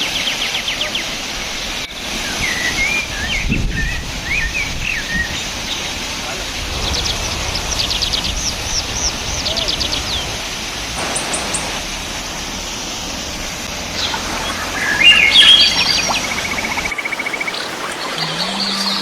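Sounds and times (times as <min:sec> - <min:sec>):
steady rushing hiss: 0:00.0 - 0:18.3
birds chirping and calling: 0:13.8 - 0:19.0
bird trill: 0:14.0 - 0:19.0.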